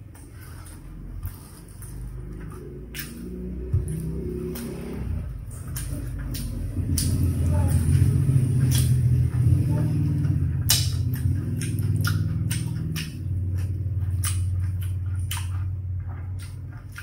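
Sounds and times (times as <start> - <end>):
chewing with crunches: 0.0 - 17.0
loud low hum: 0.0 - 17.0
wet mouth clicks: 8.6 - 9.1, 10.6 - 15.8.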